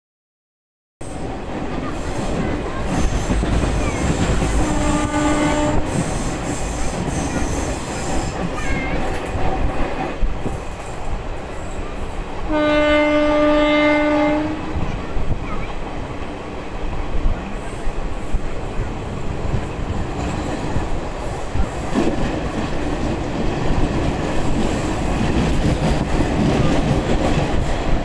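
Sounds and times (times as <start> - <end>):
train rumble and wheel clatter: 1.0 - 28.0
train horn blasts: 4.6 - 6.6, 12.5 - 14.8.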